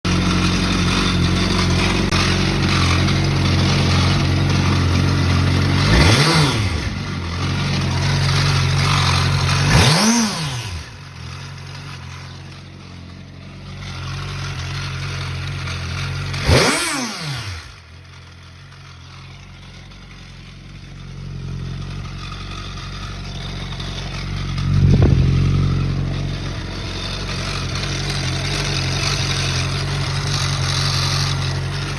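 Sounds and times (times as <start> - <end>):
motorcycle engine idling and revving: 0.0 - 31.9.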